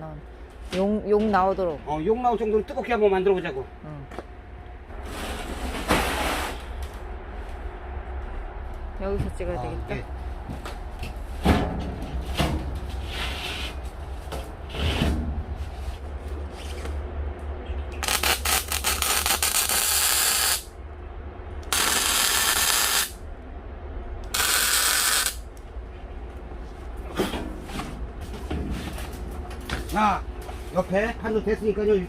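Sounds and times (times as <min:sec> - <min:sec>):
harsh hissing metalworking noise: 0:18.0 - 0:20.7, 0:21.7 - 0:23.2, 0:24.3 - 0:25.4.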